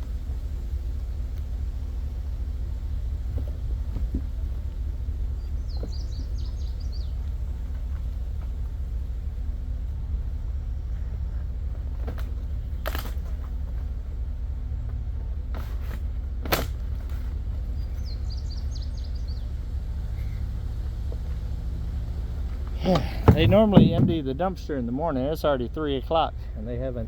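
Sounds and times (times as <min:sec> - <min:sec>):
truck engine rumbling: 0:00.0 - 0:27.0
bird chirping: 0:05.3 - 0:08.2, 0:17.7 - 0:20.4
sharp clicks or knocks: 0:23.0 - 0:24.3.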